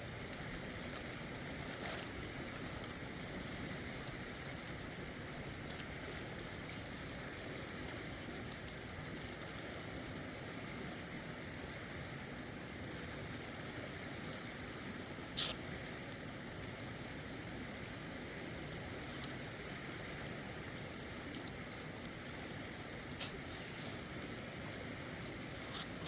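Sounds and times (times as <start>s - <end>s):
river water rushing: 17.2s - 26.0s.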